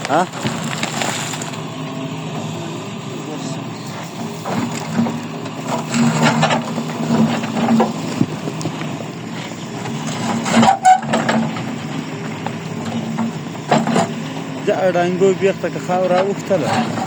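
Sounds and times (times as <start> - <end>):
knocks and clatter: 0.0 - 1.6, 4.4 - 14.4
engine humming: 0.0 - 17.0.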